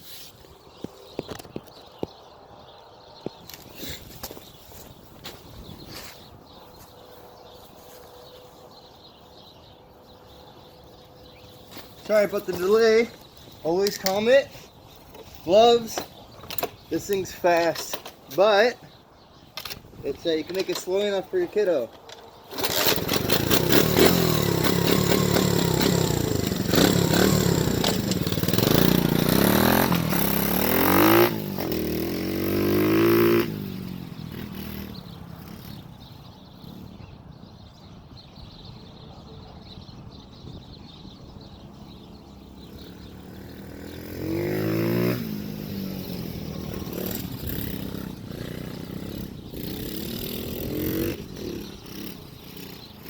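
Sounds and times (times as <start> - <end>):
motorbike engine revving: 11.2 - 18.8, 19.4 - 37.4, 41.4 - 53.0.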